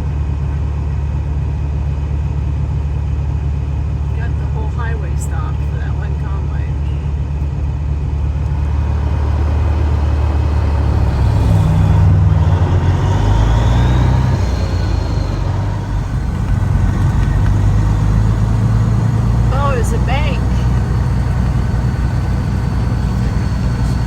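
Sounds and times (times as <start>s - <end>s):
vehicle engine drone: 0.0s - 24.0s
faint whine: 12.8s - 24.0s.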